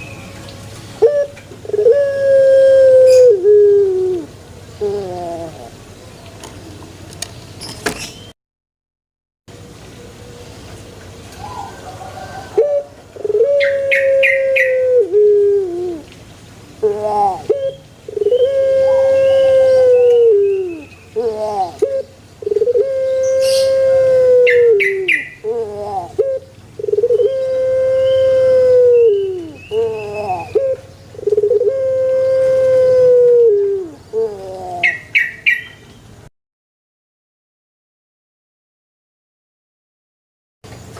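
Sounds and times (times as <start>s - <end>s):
dove cooing: 1.0s - 5.8s, 11.4s - 16.1s, 16.8s - 35.2s.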